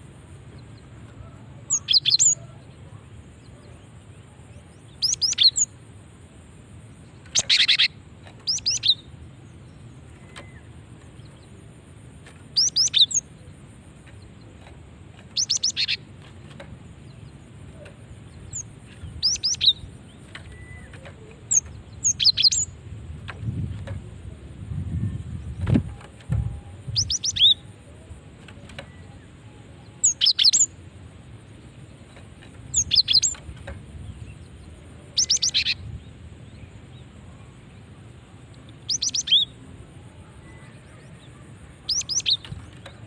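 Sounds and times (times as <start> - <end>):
tit chattering calls: 7.3 - 9.1, 12.5 - 13.3, 15.3 - 16.1, 18.4 - 22.8, 32.7 - 33.4.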